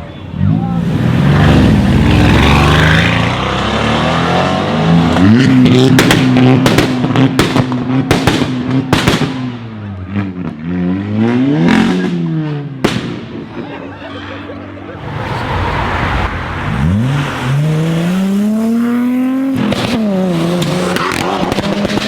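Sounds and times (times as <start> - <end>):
car engine revving: 0.4 - 7.3, 15.0 - 22.0
exhaust pops and crackles: 5.6 - 9.6, 19.5 - 22.0.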